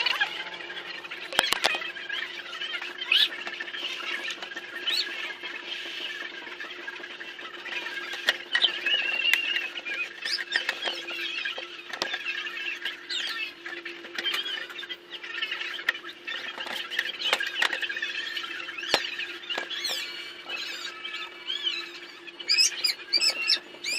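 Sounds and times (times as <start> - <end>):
high chirping and twittering: 0.0 - 23.9.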